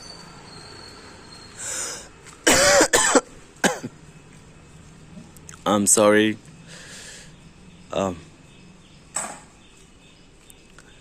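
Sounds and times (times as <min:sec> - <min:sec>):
man coughing: 0:02.4 - 0:04.0.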